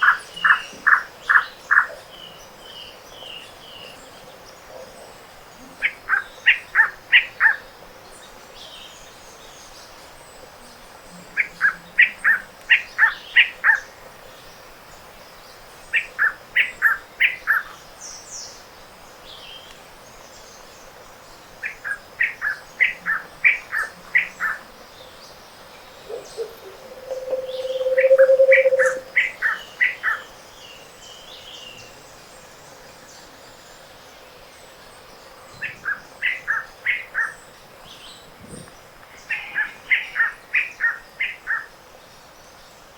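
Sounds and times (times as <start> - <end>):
faint high bird chirps: 26.0 - 29.7
low hollow note: 26.1 - 29.1
songbird whistled phrase: 26.1 - 29.1.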